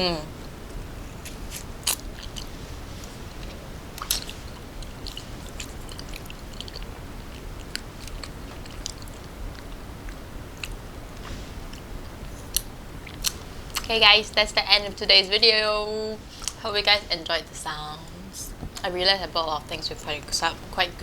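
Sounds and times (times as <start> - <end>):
chewing and biting food: 0.8 - 13.9.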